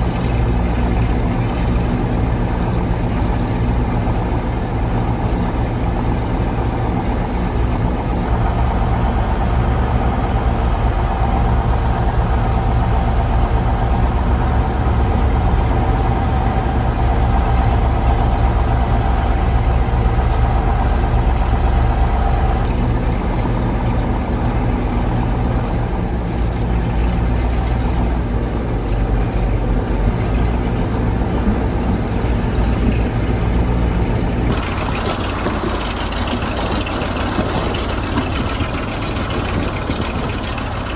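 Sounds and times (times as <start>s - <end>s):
diesel truck engine running: 0.0s - 40.9s
steady higher tone: 8.3s - 22.7s.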